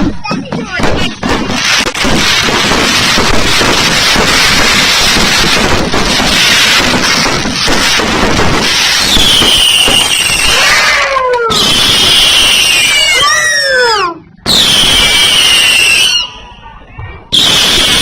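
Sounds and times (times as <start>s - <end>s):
fireworks crackling: 0.0s - 18.0s
fireworks whistling: 0.0s - 18.0s.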